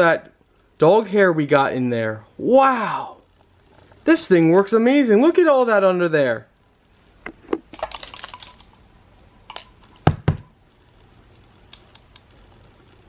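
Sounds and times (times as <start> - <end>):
plastic rustling and clicks: 7.2 - 8.8, 9.4 - 10.2, 11.6 - 12.5
sharp knocks: 10.0 - 10.5.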